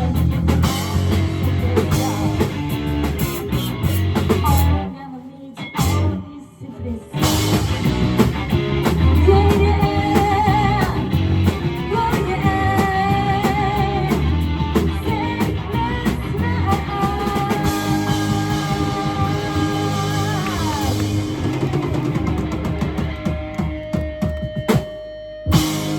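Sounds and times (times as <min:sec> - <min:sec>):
person singing with vibrato: 0:00.0 - 0:02.8, 0:09.2 - 0:11.2, 0:11.8 - 0:14.3, 0:15.0 - 0:21.2
rock band playing live: 0:00.0 - 0:05.0, 0:05.6 - 0:06.2, 0:07.1 - 0:25.9.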